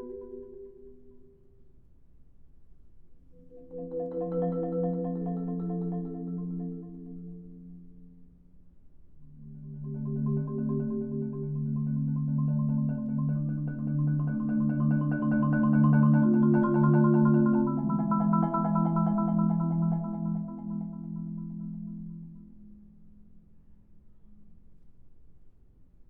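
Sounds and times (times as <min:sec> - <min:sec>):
marimba playing rolled chords: 0:03.4 - 0:08.2, 0:09.3 - 0:22.6.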